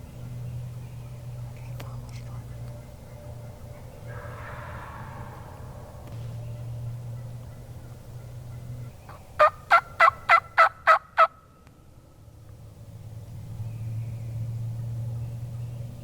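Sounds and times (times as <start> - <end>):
wild turkey yelps: 7.1 - 11.4.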